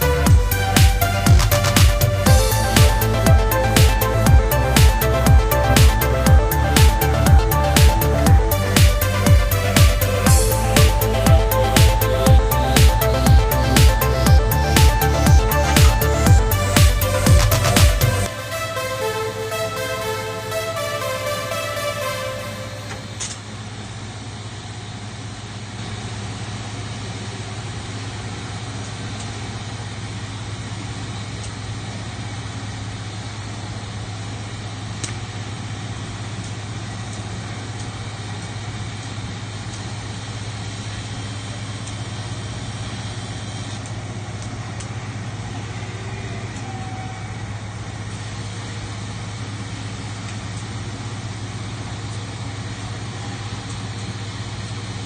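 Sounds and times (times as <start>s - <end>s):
factory machinery running: 0.0s - 24.3s
low electrical hum: 0.0s - 55.0s.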